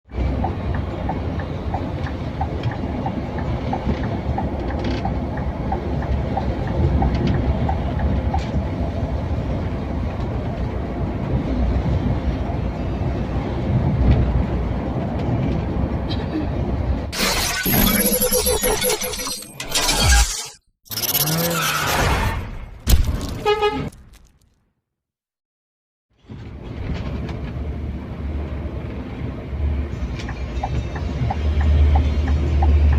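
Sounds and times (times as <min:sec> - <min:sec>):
road noise: 0:00.1 - 0:17.2, 0:26.1 - 0:32.9.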